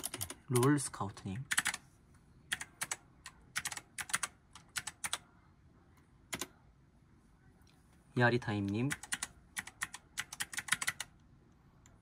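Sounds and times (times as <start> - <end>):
computer keyboard key clicks: 8.9 - 11.1.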